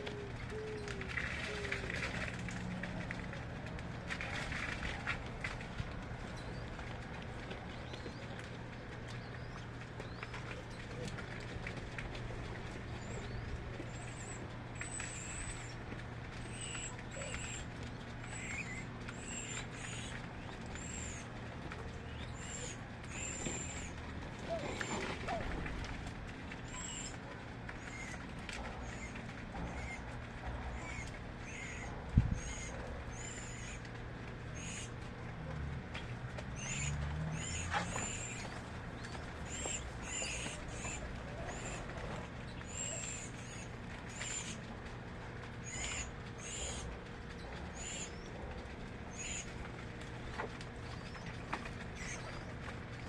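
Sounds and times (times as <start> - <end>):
steady low hum: 0.0 - 53.0
small birds chirping: 7.5 - 11.7, 12.5 - 15.8, 16.4 - 25.5, 28.8 - 30.0, 30.7 - 33.9, 34.5 - 35.0, 36.5 - 44.6, 45.6 - 48.4, 49.1 - 49.6, 50.7 - 53.0.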